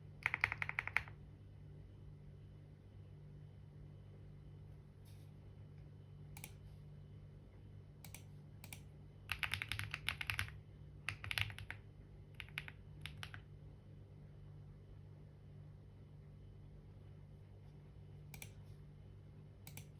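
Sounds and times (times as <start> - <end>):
typing on keyboard: 0.2 - 1.2, 8.1 - 11.8, 12.4 - 13.5.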